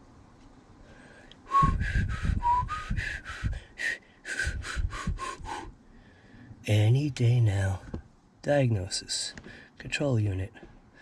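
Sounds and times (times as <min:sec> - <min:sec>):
man whistling short notes: 0:01.5 - 0:03.5, 0:04.3 - 0:05.7.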